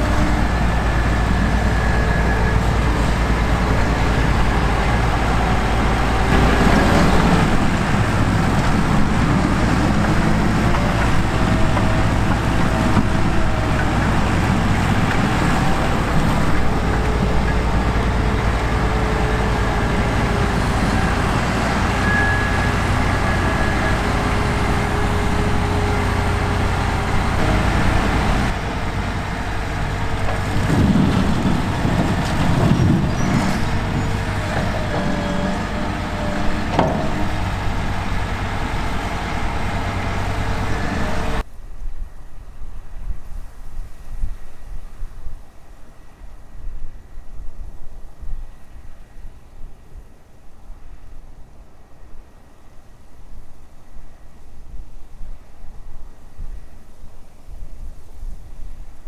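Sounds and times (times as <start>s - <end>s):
diesel farm machinery running: 0.0s - 41.5s.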